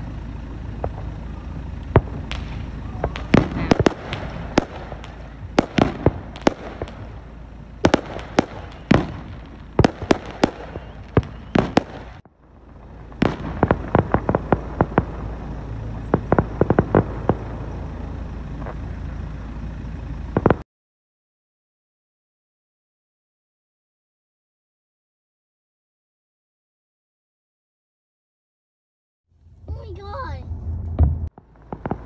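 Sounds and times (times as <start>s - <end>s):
fireworks bangs and pops: 0.2s - 19.0s, 20.3s - 20.6s, 31.0s - 32.0s.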